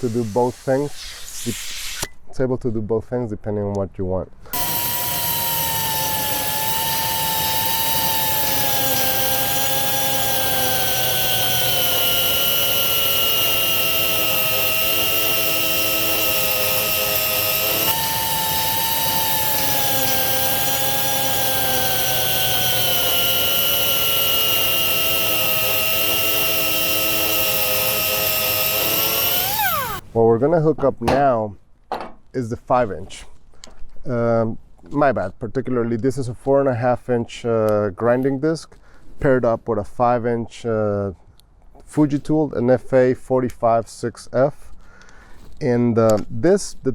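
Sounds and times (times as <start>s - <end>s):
angle grinder whining on metal: 0.0s - 2.1s, 4.5s - 30.0s.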